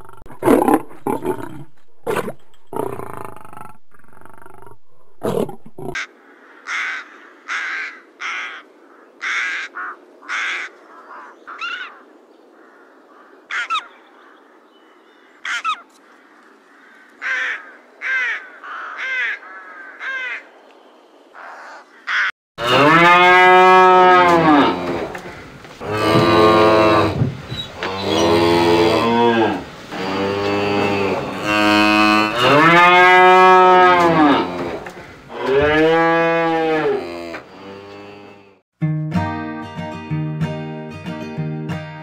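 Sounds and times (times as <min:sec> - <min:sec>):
cow mooing: 0:22.6 - 0:27.2, 0:27.8 - 0:38.6.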